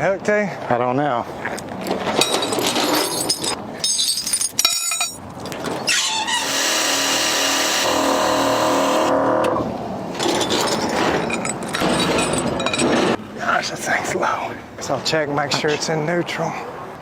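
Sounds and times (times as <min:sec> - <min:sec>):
clinks and knocks: 0:01.9 - 0:05.8, 0:10.1 - 0:13.2
motor running: 0:06.4 - 0:09.5.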